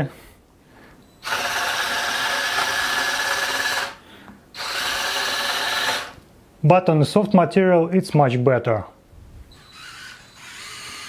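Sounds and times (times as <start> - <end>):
small electric motors whining: 1.2 - 4.0, 4.6 - 6.2, 9.5 - 11.0.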